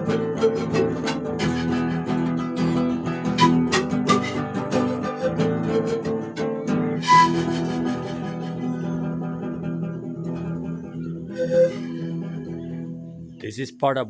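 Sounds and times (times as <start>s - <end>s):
acoustic guitar background music: 0.0s - 13.5s.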